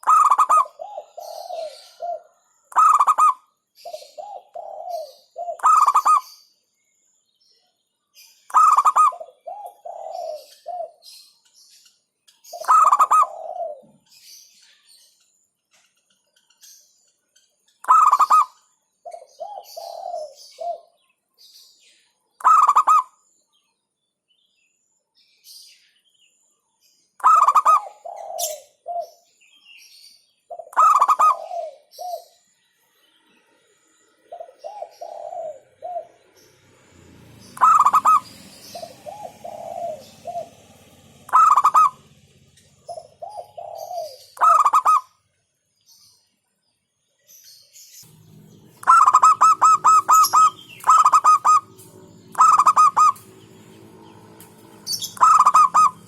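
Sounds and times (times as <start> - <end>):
dove cooing: 0.0 - 6.4, 8.5 - 11.2, 12.4 - 14.3, 17.8 - 21.0, 22.4 - 23.1, 27.2 - 29.3, 30.5 - 32.4, 34.2 - 45.1, 48.1 - 56.0.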